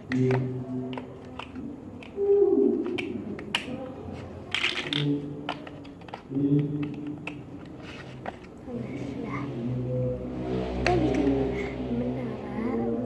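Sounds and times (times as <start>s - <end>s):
plastic puzzle pieces clicking: 0.0s - 2.2s, 2.8s - 3.8s, 4.5s - 8.5s
vocal tone sliding down: 8.7s - 13.0s.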